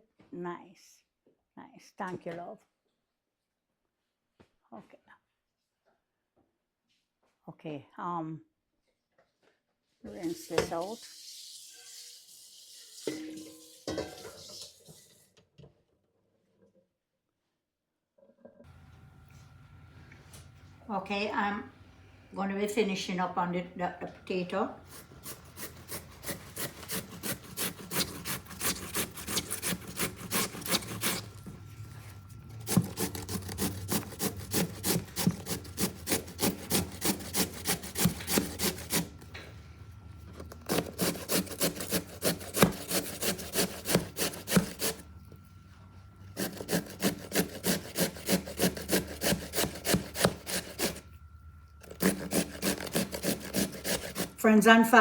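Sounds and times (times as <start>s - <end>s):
potato grating strokes: 24.8s - 39.4s, 40.3s - 45.5s, 46.2s - 54.4s.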